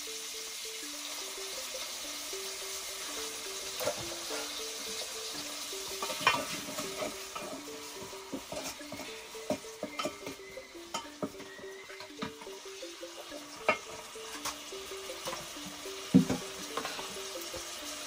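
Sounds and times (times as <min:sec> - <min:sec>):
tomatoes sizzling in a saucepan: 0:00.0 - 0:18.0
spoon scraping a pot: 0:05.9 - 0:11.3
spoon knocking against a pot: 0:06.0 - 0:12.5, 0:15.3 - 0:17.1.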